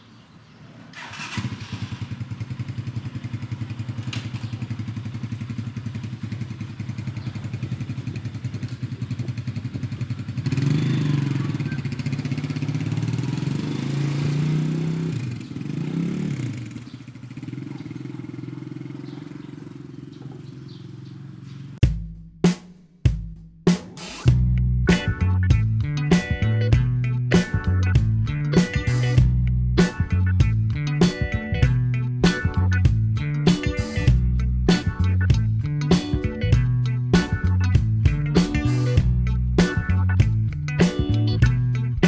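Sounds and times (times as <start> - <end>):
motorcycle engine running: 1.0 - 22.1, 24.2 - 42.0
music with heavy drum hits: 21.8 - 41.8.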